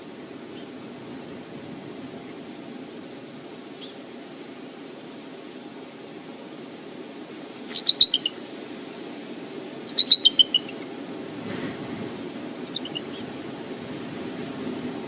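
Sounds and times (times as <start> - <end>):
wind rumble on microphone: 0.0 - 15.0
eagle calling: 7.6 - 8.5, 9.8 - 10.9, 12.6 - 13.5.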